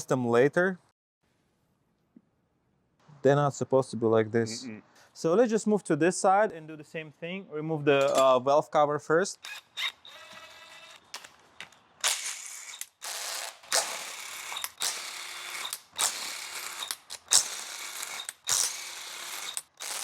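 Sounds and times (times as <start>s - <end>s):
ratchet clicking: 12.0s - 20.0s.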